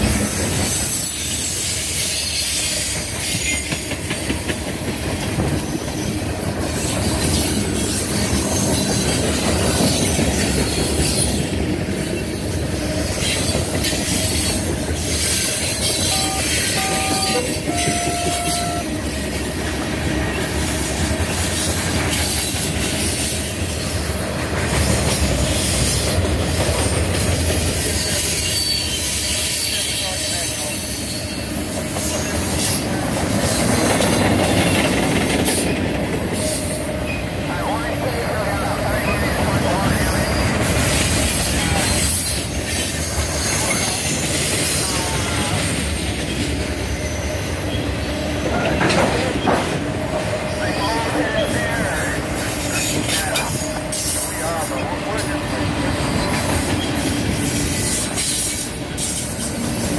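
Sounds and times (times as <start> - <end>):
freight train wheels rumbling: 0.0 - 59.9
train horn: 15.8 - 19.2.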